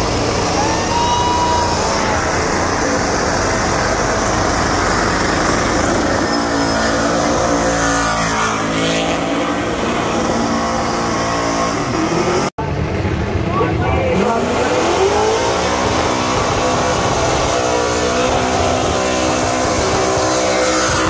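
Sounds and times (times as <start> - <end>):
car engine revving hard: 0.0 - 12.5, 14.1 - 21.0.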